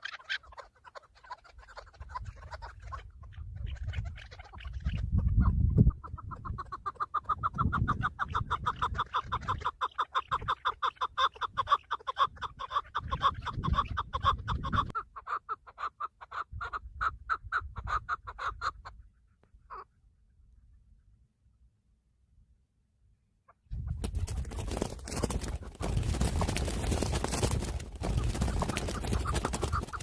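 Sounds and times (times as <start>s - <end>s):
partridge clucking calls: 0.0s - 19.1s, 19.7s - 19.9s, 23.5s - 30.0s.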